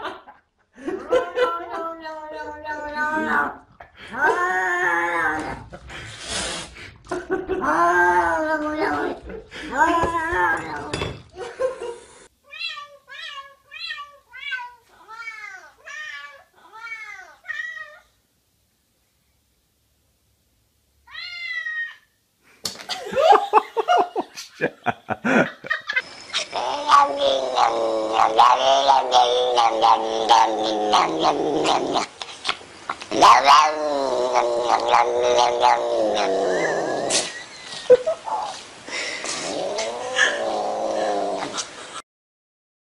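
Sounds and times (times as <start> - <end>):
cat meowing: 21.1 - 22.1
cat yowling: 26.5 - 31.8.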